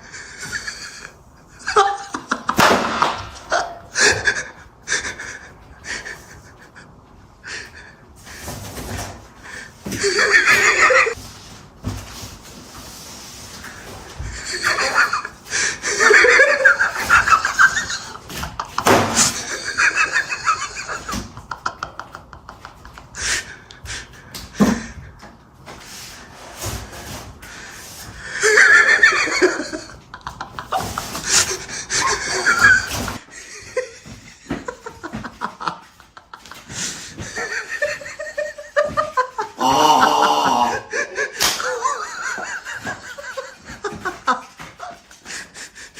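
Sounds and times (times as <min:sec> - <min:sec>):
people laughing and snickering: 0:03.4 - 0:08.0, 0:09.4 - 0:11.2, 0:14.2 - 0:25.0, 0:28.2 - 0:45.9.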